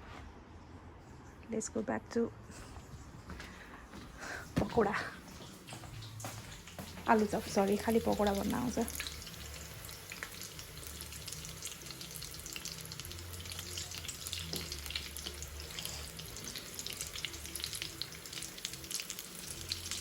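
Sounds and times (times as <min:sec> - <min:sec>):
potato patties sizzling in oil: 0:05.3 - 0:20.0.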